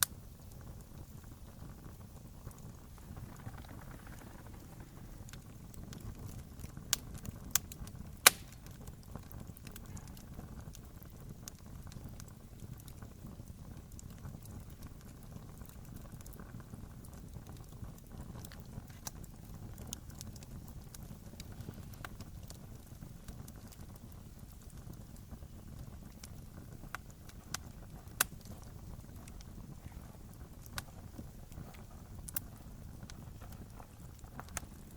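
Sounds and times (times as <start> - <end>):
low rumble of flames: 0.0 - 34.9
wood fire crackling: 0.0 - 34.9
loud pops: 8.2 - 8.8.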